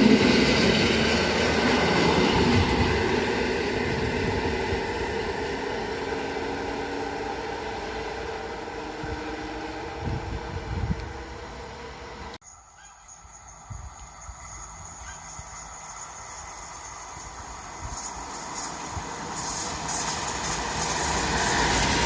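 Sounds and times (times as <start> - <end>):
electric train rail rumble: 0.0 - 22.0.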